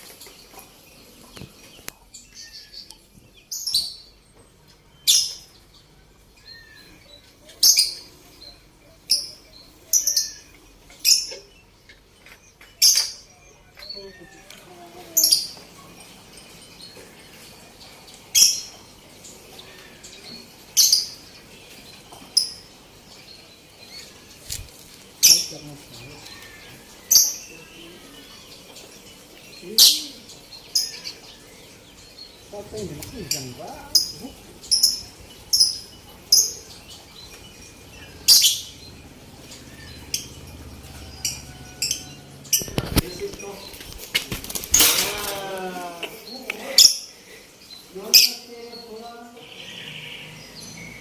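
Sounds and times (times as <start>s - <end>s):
faint bird twittering: 15.1s - 51.0s
sharp high-pitched bird calls: 33.1s - 47.2s.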